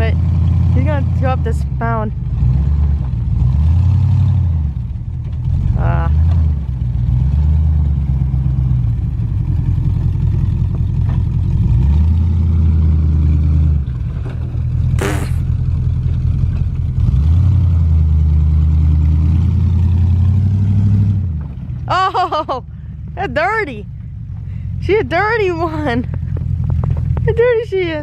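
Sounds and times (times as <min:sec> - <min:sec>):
brief sharp noise: 0:15.0 - 0:15.4
pickup truck engine revving: 0:15.0 - 0:15.6.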